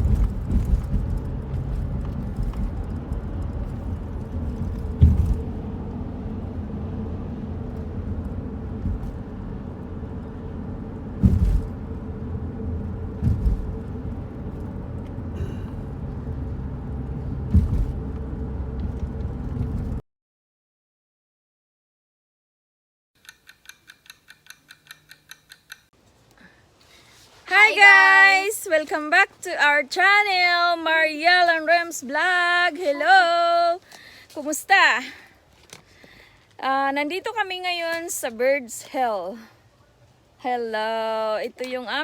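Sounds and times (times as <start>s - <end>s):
short thumps: 0.0s - 6.0s, 7.6s - 20.0s
low vehicle rumble: 0.0s - 20.0s.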